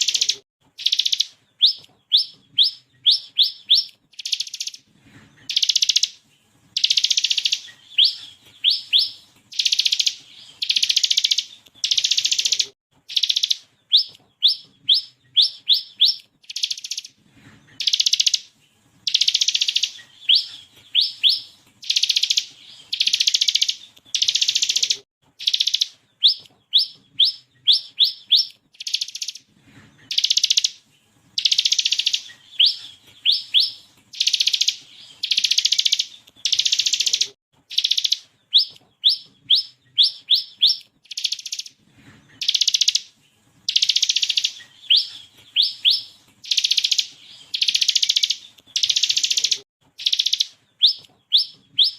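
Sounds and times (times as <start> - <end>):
bird singing buzzy trills: 0.0 - 51.9.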